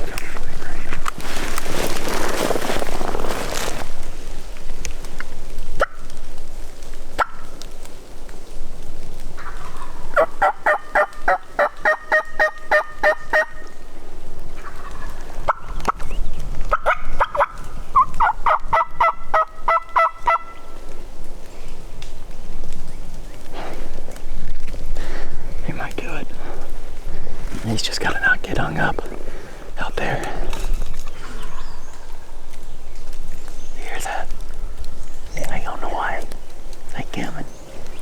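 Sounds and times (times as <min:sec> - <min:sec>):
turkey gobbling: 0:09.4 - 0:13.7, 0:14.6 - 0:15.7, 0:16.7 - 0:20.8
faint sharp clicks: 0:20.8 - 0:24.8, 0:30.2 - 0:38.0.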